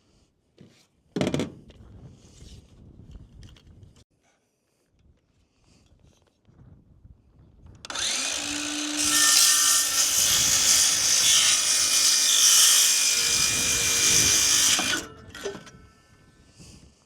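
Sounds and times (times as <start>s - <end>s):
power saw cutting wood: 7.9s - 15.7s.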